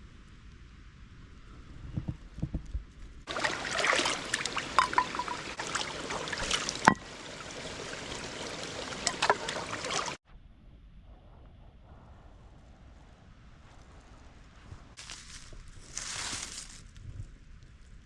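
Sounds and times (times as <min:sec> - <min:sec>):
stream water rushing: 0:03.3 - 0:10.2.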